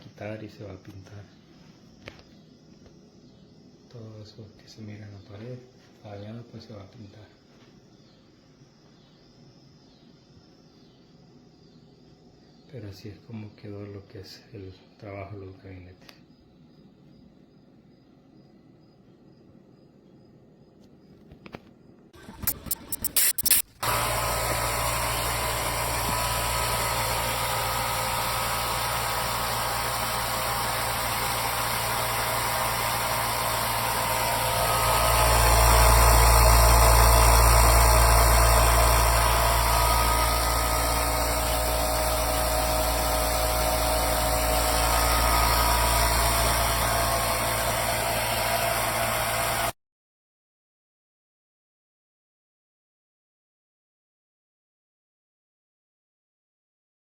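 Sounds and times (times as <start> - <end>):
compressor clicks: 22.2 - 49.7
air compressor running: 22.2 - 49.8.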